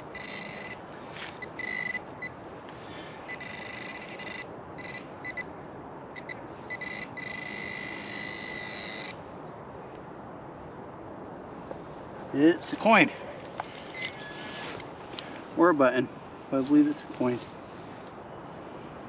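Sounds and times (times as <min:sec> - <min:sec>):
metal detector buzzing: 0:00.0 - 0:00.8, 0:01.4 - 0:02.0, 0:03.3 - 0:05.4, 0:06.2 - 0:09.2.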